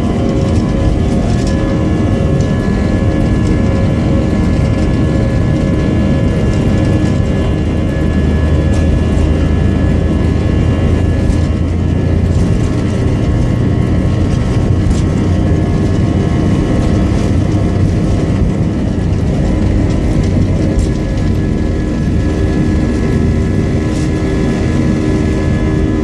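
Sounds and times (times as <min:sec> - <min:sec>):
jet engines running: 0:00.0 - 0:26.0.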